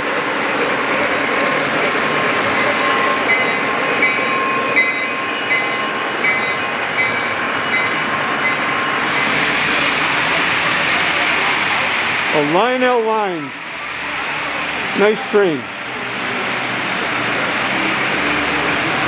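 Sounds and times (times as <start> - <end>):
model train rumbling: 0.0 - 19.0.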